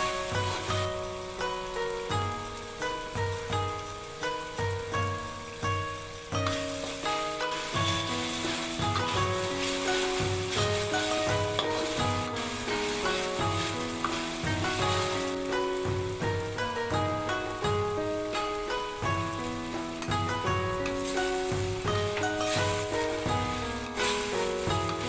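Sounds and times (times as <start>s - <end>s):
background music with steady beat: 0.0s - 25.0s
sizzling in hot oil: 0.0s - 25.0s
metal spatula scraping pan: 6.4s - 15.5s, 20.8s - 25.0s.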